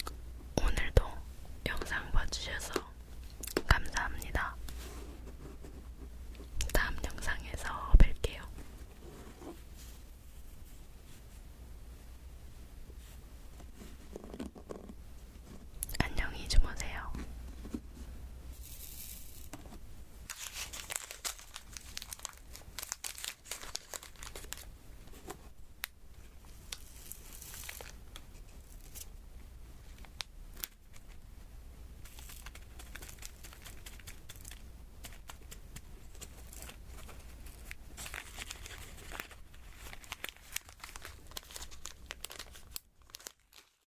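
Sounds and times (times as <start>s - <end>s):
sticky film crackling and peeling: 20.3s - 24.7s, 32.0s - 43.8s.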